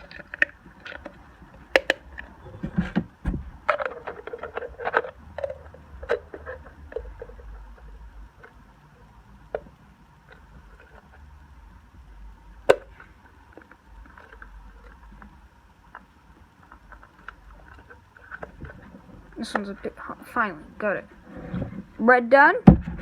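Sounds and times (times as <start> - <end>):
plastic parts clicking and tapping: 0.0 - 8.6, 9.5 - 11.2
plastic scraping and rubbing: 0.0 - 8.6, 12.7 - 22.0, 22.7 - 23.0.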